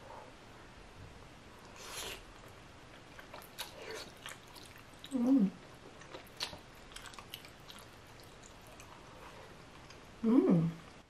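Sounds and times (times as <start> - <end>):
chewing noodles: 1.6 - 10.0
person humming: 10.2 - 10.8.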